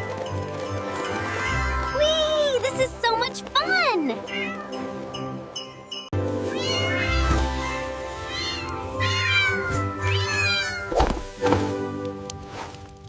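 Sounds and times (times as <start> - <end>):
background music: 0.0 - 13.0
cat meowing: 4.2 - 4.8, 6.5 - 11.0.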